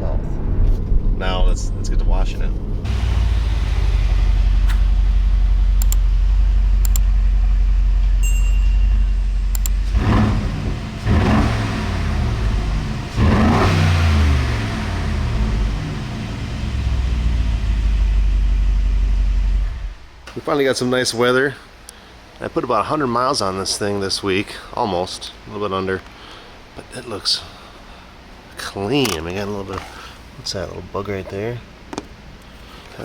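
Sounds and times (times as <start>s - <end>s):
car engine accelerating: 0.0s - 8.2s, 9.4s - 20.0s.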